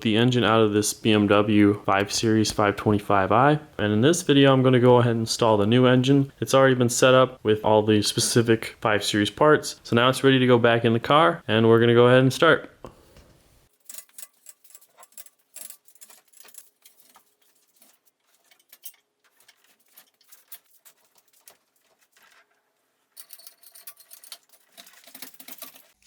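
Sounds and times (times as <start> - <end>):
light clicks and rattles: 23.2 - 26.0.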